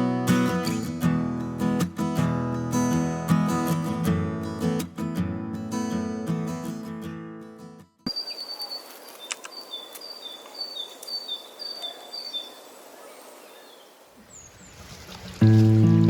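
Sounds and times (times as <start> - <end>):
steady outdoor hiss: 8.1 - 16.0.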